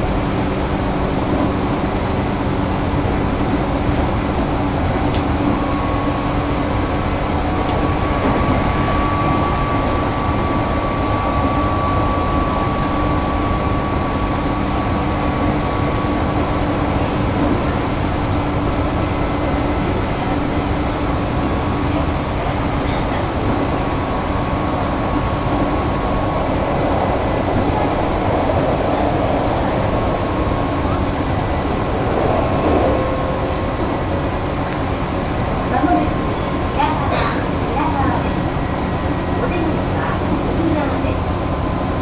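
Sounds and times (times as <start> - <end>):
train wheels rumbling: 0.0 - 42.0
thin steady whine: 5.3 - 42.0
wind on microphone: 23.4 - 35.7
low hum: 25.0 - 36.5.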